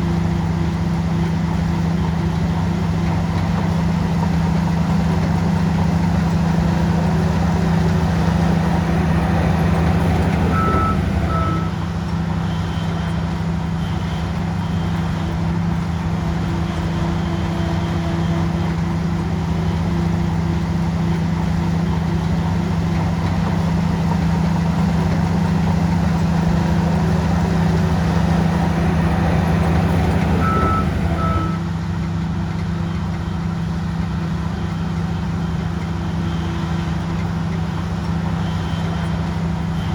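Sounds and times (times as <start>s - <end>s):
bulldozer diesel engine running: 0.0s - 39.9s
short beeps: 9.2s - 11.8s, 28.9s - 31.7s.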